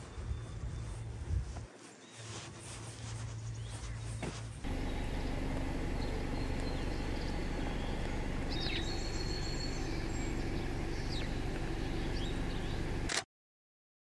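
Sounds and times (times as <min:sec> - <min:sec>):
songbird chirps: 0:00.0 - 0:13.1
low rumble and hum: 0:04.6 - 0:13.1.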